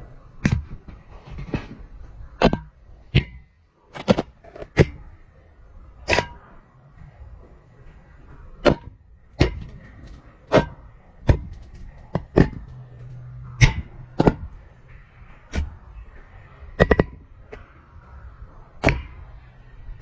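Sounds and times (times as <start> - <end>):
pipe ringing: 10.5 - 15.8.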